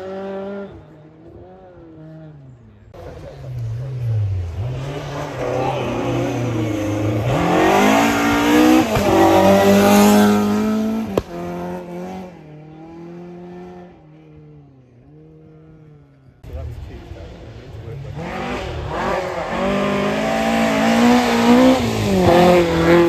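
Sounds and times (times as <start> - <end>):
rally car engine accelerating: 0.0 - 23.0
sharp crack: 3.0 - 11.8.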